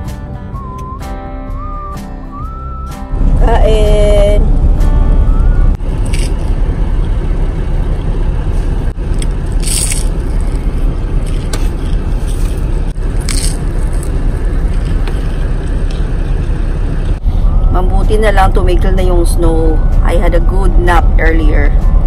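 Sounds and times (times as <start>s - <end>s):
steady low rumble: 2.4s - 22.0s
short scrapes or crunches: 9.6s - 14.2s.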